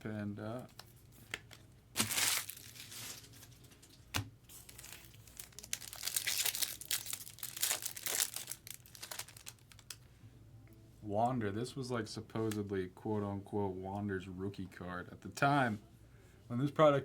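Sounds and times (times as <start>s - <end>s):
trading card packaging crinkling: 0.6s - 10.0s.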